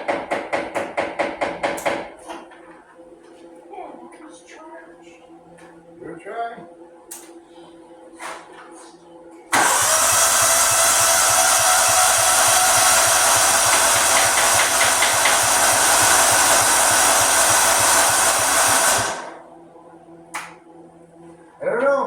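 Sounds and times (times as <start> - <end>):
lawnmower engine cranking: 9.6 - 19.4.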